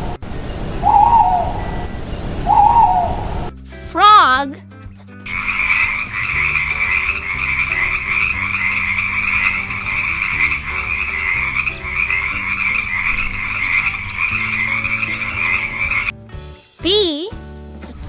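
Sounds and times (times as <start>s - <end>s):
frogs croaking: 0.0s - 3.5s, 5.3s - 16.1s.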